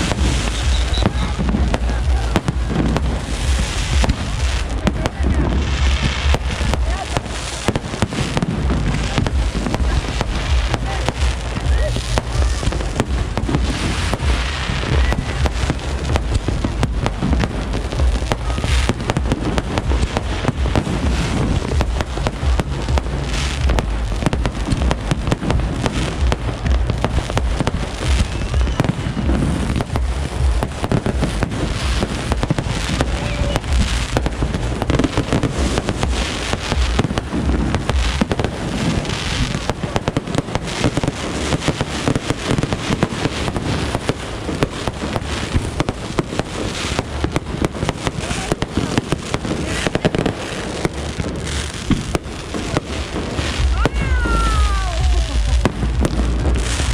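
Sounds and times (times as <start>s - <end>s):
fireworks booming bursts: 0.0s - 56.9s
fireworks crackling and popping: 0.0s - 56.9s.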